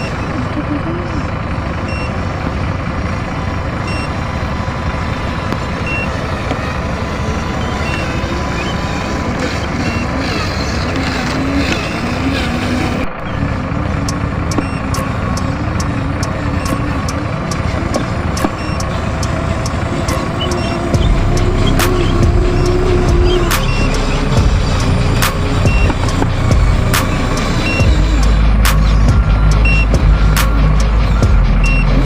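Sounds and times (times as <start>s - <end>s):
toy truck engine: 0.0s - 32.0s
quick ticks: 23.4s - 31.0s.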